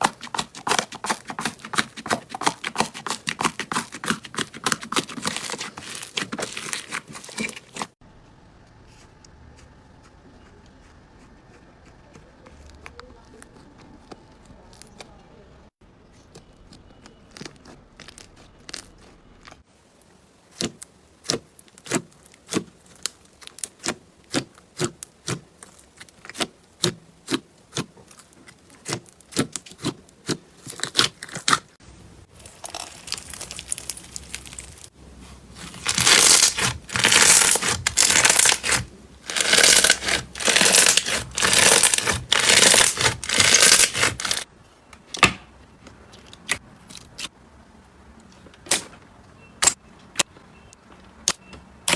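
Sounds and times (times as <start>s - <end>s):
slime crackling when squished: 0.0s - 8.0s, 20.5s - 31.8s, 32.4s - 34.9s, 35.6s - 44.5s.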